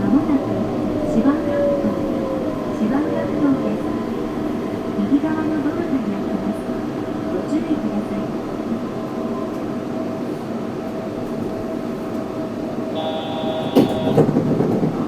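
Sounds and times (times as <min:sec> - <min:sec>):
train running with motor hum: 0:00.0 - 0:15.0
high whine: 0:12.9 - 0:14.2.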